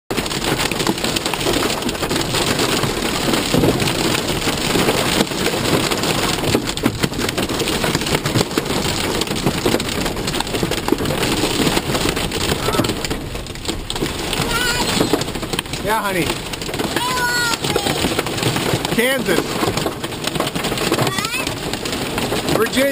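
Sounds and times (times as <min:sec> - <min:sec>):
heavy rain on a hard surface: 0:00.1 - 0:22.9.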